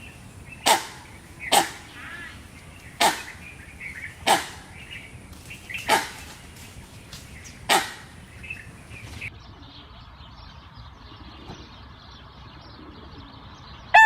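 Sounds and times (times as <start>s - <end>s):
faint bird chirps: 0.0s - 14.0s
animal short sharp calls: 3.0s - 4.8s, 5.8s - 6.4s, 7.6s - 8.2s.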